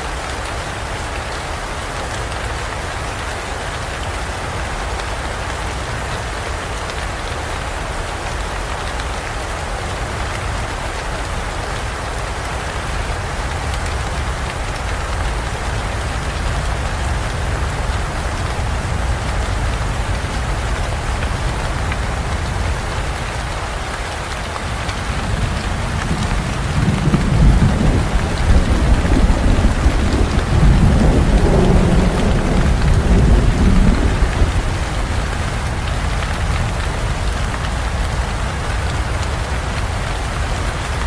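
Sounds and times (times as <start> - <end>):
heavy rain: 0.0 - 41.0
thunder rumbling: 24.7 - 37.4.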